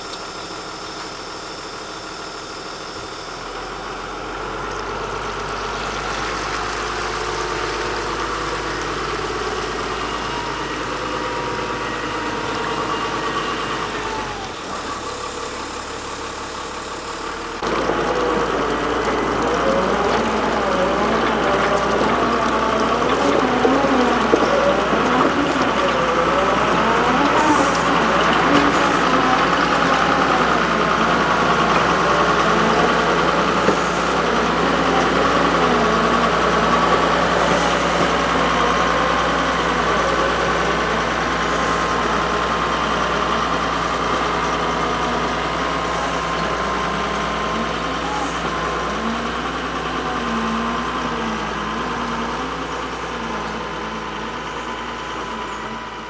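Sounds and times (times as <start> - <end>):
excavator engine running: 0.0 - 56.0
faint voices: 17.6 - 56.0.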